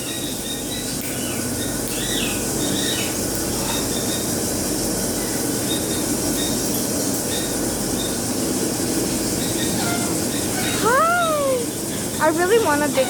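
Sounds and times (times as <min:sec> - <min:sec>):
parrots and birds screeching: 0:09.3 - 0:13.0.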